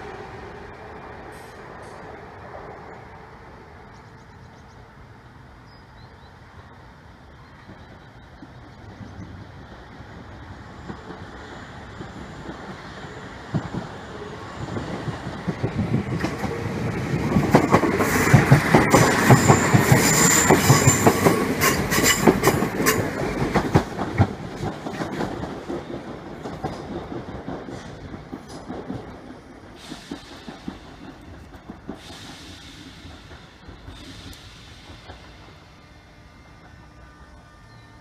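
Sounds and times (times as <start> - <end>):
train wheels clicking over rail joints: 10.6 - 35.8.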